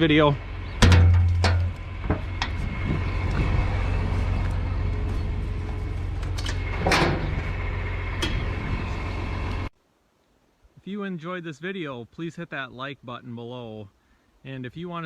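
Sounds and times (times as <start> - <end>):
farm machinery droning: 0.0 - 9.7.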